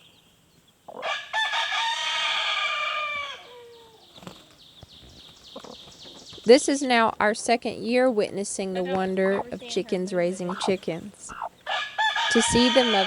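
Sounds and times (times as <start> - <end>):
rooster crowing: 1.0 - 4.0, 11.7 - 13.0.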